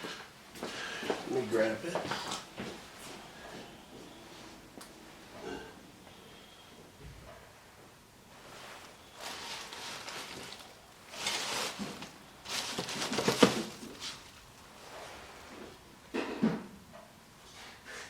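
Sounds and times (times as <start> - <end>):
rustling of things handled: 0.0 - 5.8, 8.3 - 16.4.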